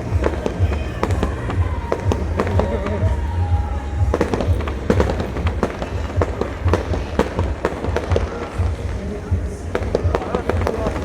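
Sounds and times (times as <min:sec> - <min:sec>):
fireworks bangs and crackles: 0:00.0 - 0:11.0
low rumble: 0:00.0 - 0:11.0.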